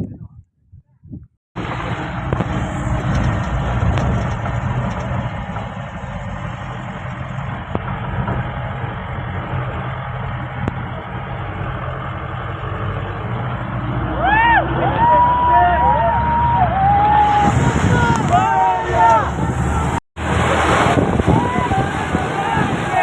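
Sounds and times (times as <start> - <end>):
diesel engine running: 1.6 - 23.0
road and body noise: 1.6 - 23.0.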